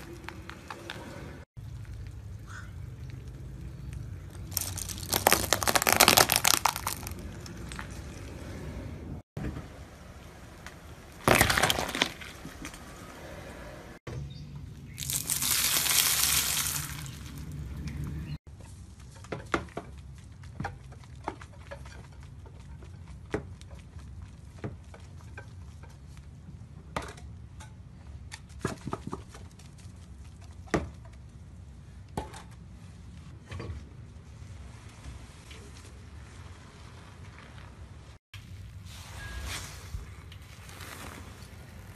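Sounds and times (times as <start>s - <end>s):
loud crunch: 4.4s - 7.9s
soap crushed under a tyre: 4.4s - 8.0s, 11.2s - 12.8s.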